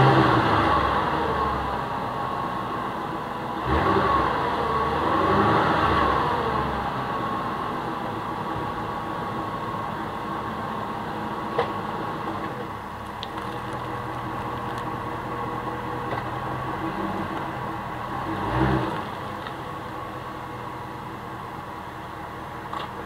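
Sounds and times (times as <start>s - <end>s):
engine revving: 0.0s - 1.7s, 3.6s - 7.2s, 16.1s - 19.3s
car engine idling: 0.0s - 5.2s, 6.0s - 23.0s.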